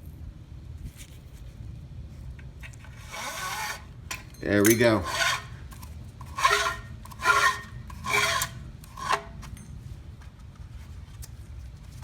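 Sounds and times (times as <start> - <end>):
starter rope rasping: 2.8 - 9.6.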